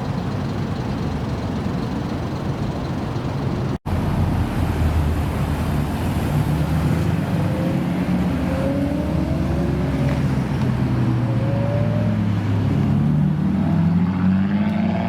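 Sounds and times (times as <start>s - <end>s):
car engine running: 0.0s - 7.4s.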